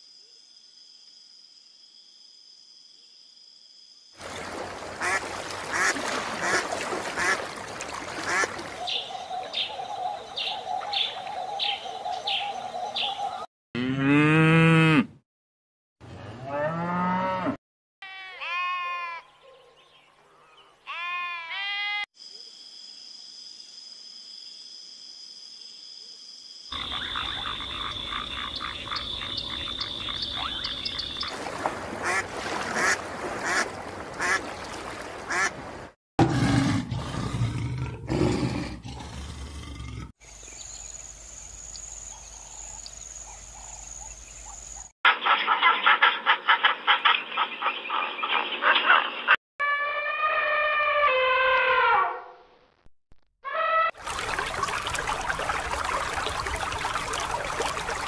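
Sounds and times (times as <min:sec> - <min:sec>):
sheep bleating: 0:18.1 - 0:19.2.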